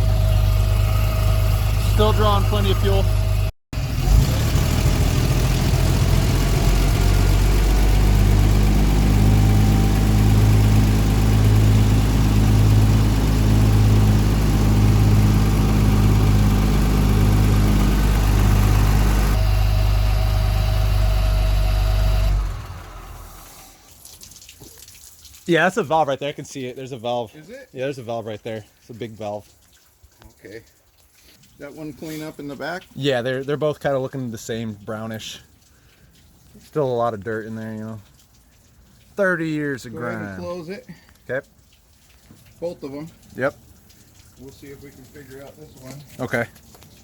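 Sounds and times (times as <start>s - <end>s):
fire truck engine idling: 0.0s - 3.5s, 4.5s - 23.6s.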